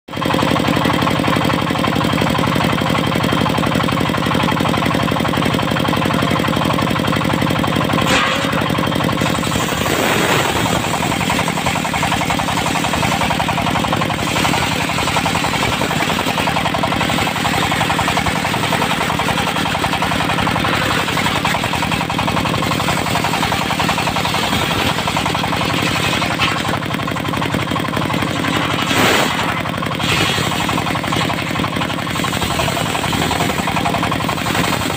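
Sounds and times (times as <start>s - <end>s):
diesel engine knocking: 0.1s - 34.9s
saw blade cutting wood: 7.8s - 34.9s.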